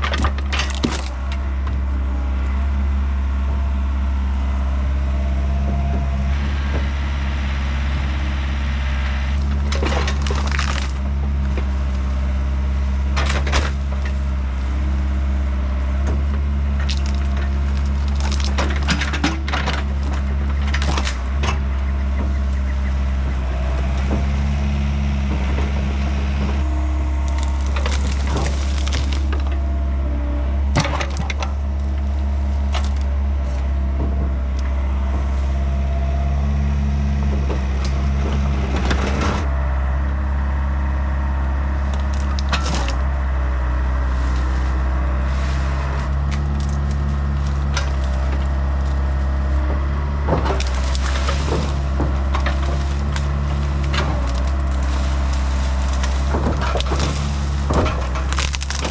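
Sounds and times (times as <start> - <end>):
branches breaking: 0.0 - 1.6, 9.0 - 30.0, 30.6 - 36.6, 40.5 - 58.9
wood cracking and splintering: 0.0 - 2.5, 8.9 - 39.6, 40.4 - 58.9
diesel engine running: 0.0 - 58.9.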